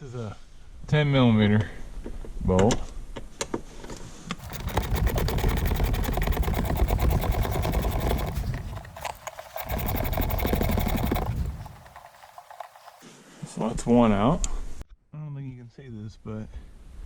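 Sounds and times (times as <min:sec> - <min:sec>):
cordless power tool whirring: 0:04.4 - 0:13.0.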